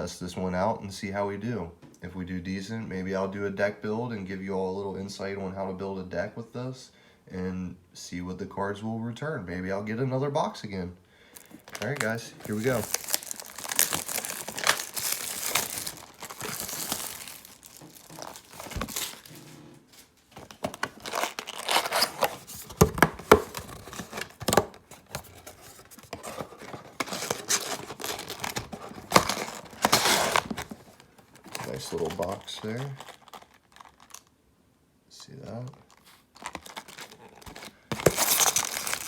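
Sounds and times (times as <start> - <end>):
packaging tearing and crinkling: 11.4 - 19.5, 20.4 - 34.3, 35.8 - 39.0.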